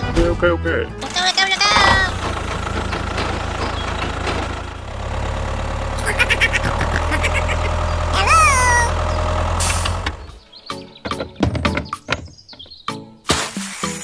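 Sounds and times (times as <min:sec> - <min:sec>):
tractor engine humming: 0:00.9 - 0:10.6
short rising and falling cry: 0:06.0 - 0:09.1.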